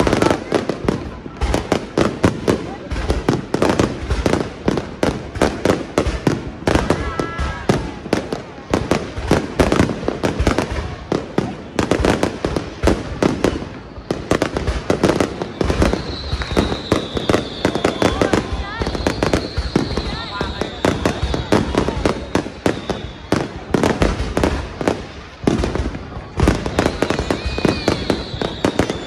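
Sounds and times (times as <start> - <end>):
fireworks bangs: 0.0 - 29.0
high steady whistling tone: 15.2 - 23.6, 26.0 - 29.0.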